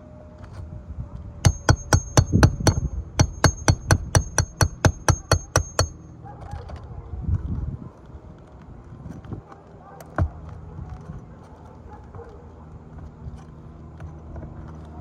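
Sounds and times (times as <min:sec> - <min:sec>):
hammer driving roofing nails: 0:01.4 - 0:06.0.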